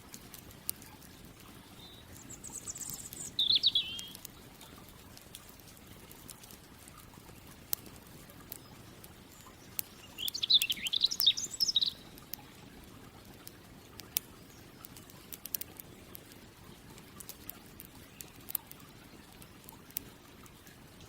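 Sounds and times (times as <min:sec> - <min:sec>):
campfire crackling and popping: 0:00.0 - 0:21.0
songbird warbling: 0:00.7 - 0:05.6, 0:07.3 - 0:12.8, 0:17.1 - 0:19.8.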